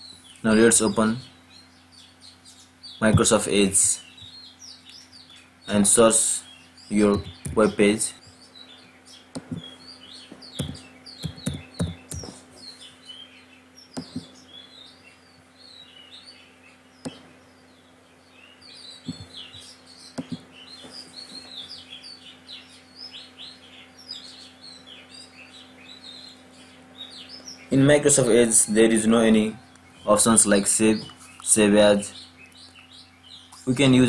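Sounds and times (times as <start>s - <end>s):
low steady hum: 0.0s - 34.0s
small birds chirping: 0.0s - 34.0s
keyboard and mouse clicks: 9.3s - 9.6s, 10.6s - 12.3s, 14.0s - 14.3s, 20.2s - 20.4s.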